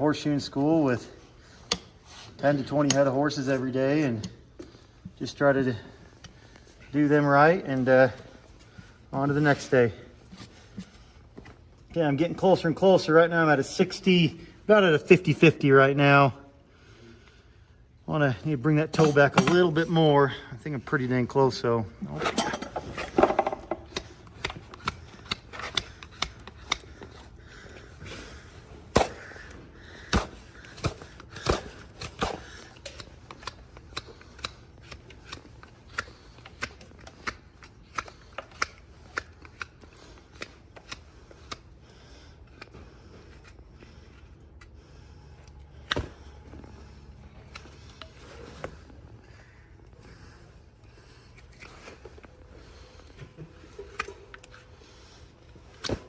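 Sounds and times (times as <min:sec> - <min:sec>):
hoof trimming clicks and snaps: 0:01.6 - 0:01.9, 0:23.8 - 0:27.8, 0:29.0 - 0:44.8, 0:45.4 - 0:49.9, 0:51.2 - 0:55.0.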